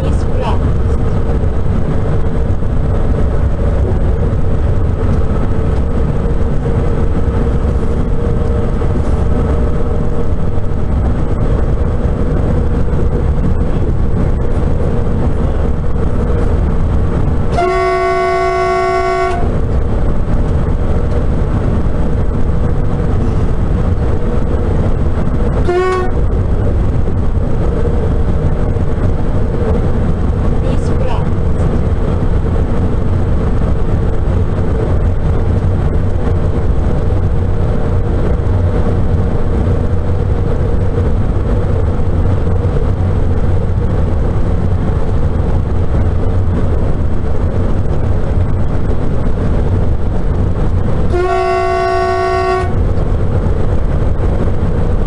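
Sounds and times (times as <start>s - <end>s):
train cab rumble and hum: 0.0s - 55.0s
train horn blast: 17.5s - 19.6s, 25.6s - 26.3s, 51.1s - 52.8s.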